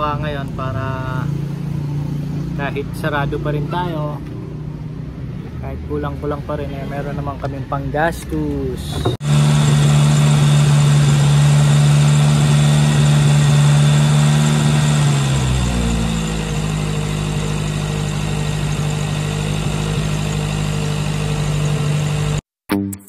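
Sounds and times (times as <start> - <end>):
car engine running at high idle: 9.0 - 22.4.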